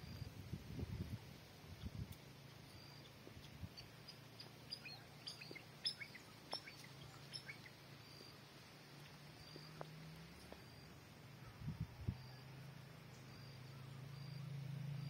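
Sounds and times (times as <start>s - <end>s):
small birds chirping: 1.7s - 15.0s.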